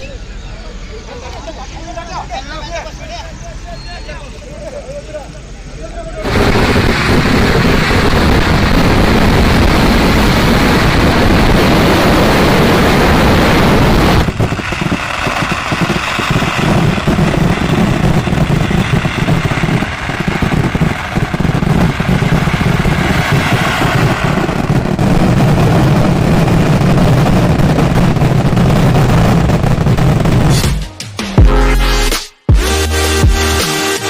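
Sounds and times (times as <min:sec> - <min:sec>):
firecracker bangs and crackles: 0:06.2 - 0:31.0
fireworks barrage: 0:06.2 - 0:34.0.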